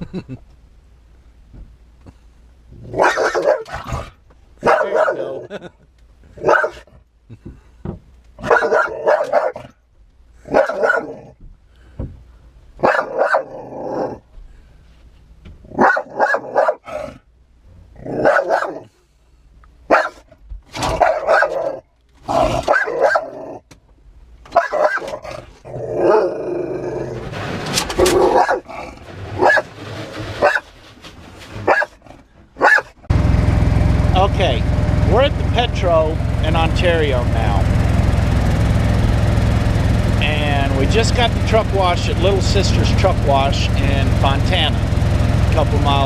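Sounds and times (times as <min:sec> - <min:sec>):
dog barking: 0:03.0 - 0:03.8, 0:04.6 - 0:05.3, 0:06.4 - 0:06.9, 0:08.4 - 0:09.7, 0:10.5 - 0:11.2, 0:12.8 - 0:13.5, 0:15.8 - 0:16.9, 0:18.2 - 0:18.9, 0:19.9 - 0:20.2, 0:20.9 - 0:21.8, 0:22.6 - 0:23.4, 0:24.6 - 0:25.1, 0:28.3 - 0:28.6, 0:31.7 - 0:32.0, 0:32.6 - 0:32.9.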